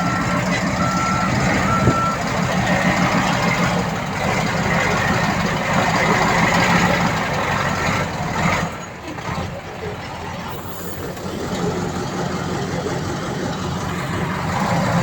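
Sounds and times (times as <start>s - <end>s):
reversing alarm beeping: 0.0s - 3.4s
heavy engine running: 0.0s - 15.0s.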